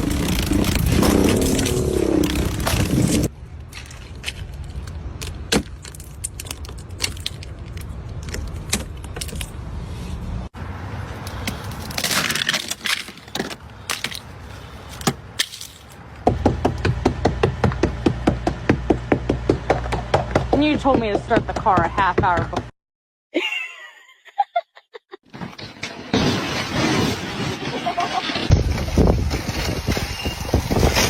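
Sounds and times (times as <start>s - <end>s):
ice cracking and clinking: 0.0s - 4.9s, 11.6s - 14.3s.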